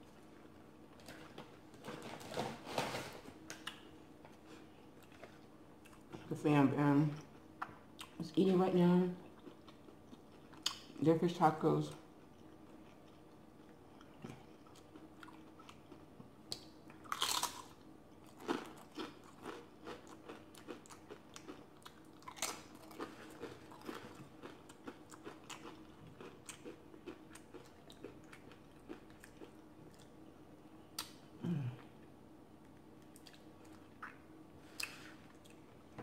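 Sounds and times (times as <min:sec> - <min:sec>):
crunchy chip chewing: 0:14.0 - 0:30.1.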